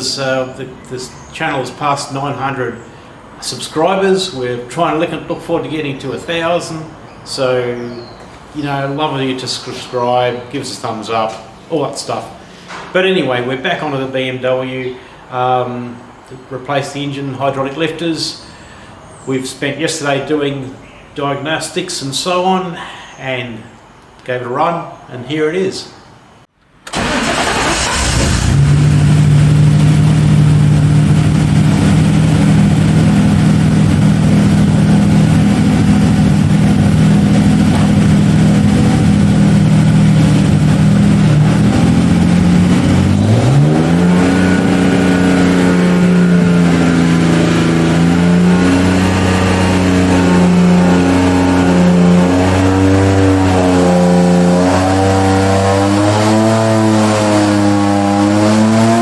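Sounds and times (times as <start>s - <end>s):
car engine revving: 26.9s - 59.0s.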